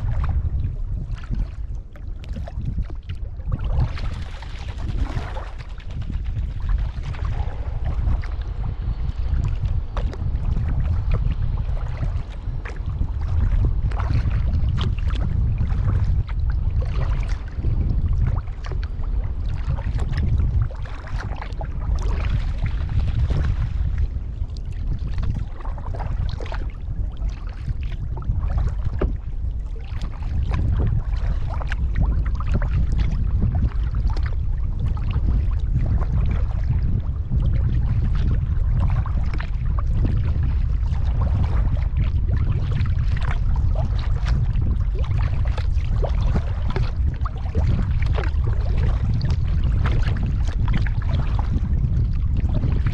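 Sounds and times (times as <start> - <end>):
low rumble: 0.0 - 52.9
paddle splashing and dripping: 0.0 - 52.9.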